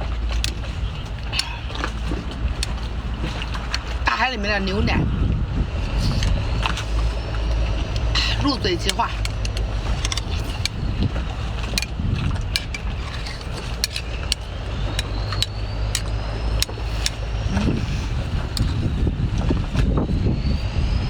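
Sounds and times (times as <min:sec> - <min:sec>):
wind buffeting microphone: 0:00.0 - 0:21.0
sharp clicks: 0:08.8 - 0:11.1, 0:11.7 - 0:17.4.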